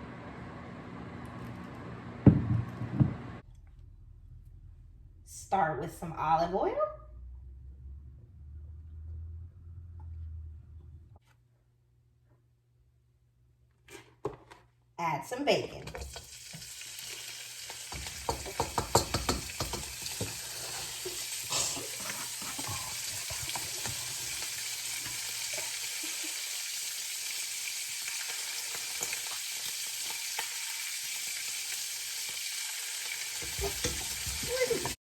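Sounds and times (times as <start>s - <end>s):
bacon sizzling in a pan: 15.9s - 35.0s.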